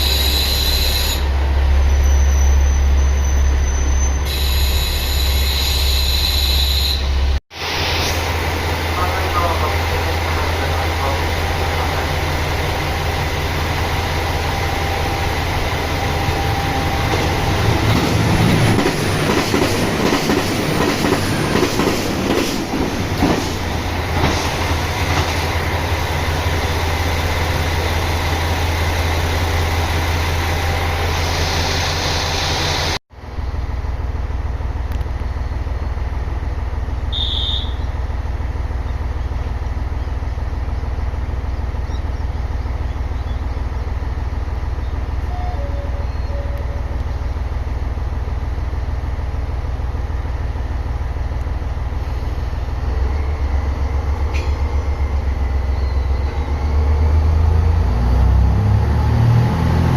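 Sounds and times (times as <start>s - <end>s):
diesel train engine hum: 0.0s - 59.9s.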